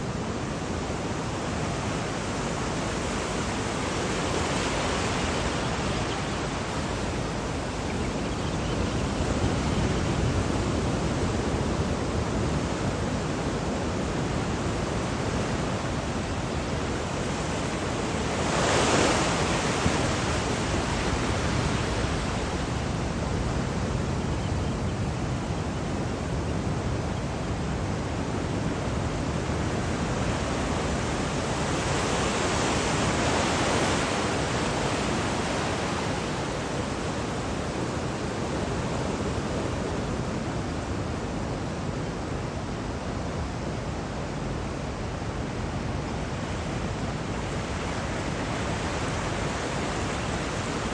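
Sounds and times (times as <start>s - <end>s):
ocean surf washing: 0.0s - 50.9s
waves breaking: 0.6s - 24.0s.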